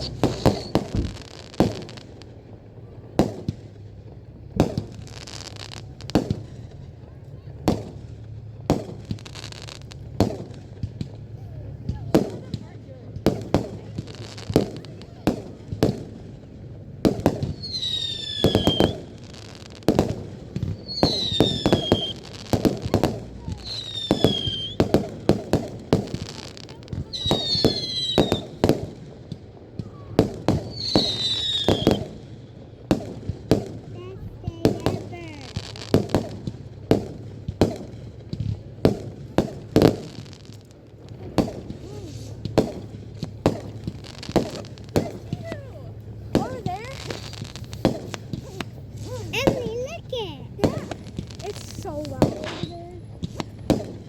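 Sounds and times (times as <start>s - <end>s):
fireworks bangs and crackles: 0.0s - 54.0s
fireworks whistles: 0.0s - 54.0s.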